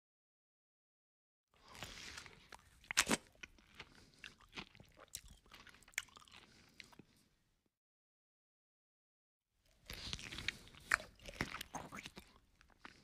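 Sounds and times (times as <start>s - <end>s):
man chewing: 1.6s - 7.3s, 9.7s - 13.0s.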